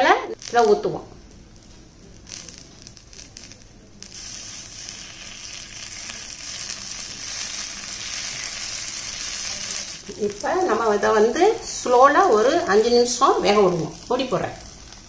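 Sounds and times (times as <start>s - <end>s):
omelette sizzling in pan: 0.2s - 15.0s.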